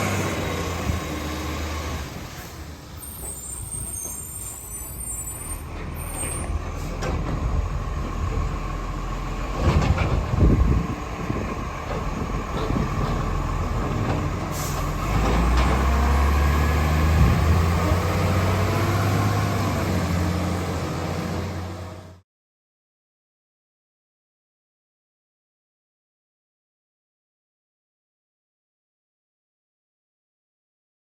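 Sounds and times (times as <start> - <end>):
garbage truck engine running: 5.6 - 22.2.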